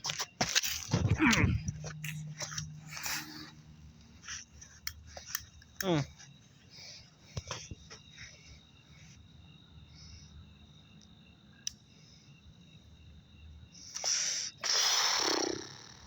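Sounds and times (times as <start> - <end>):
crickets chirping: 0.0 - 16.0
firework hissing: 14.0 - 15.7.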